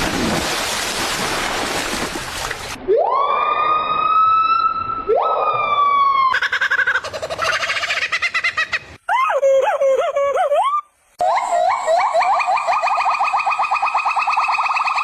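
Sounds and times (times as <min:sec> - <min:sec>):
siren-like rising wail: 0:02.9 - 0:06.3.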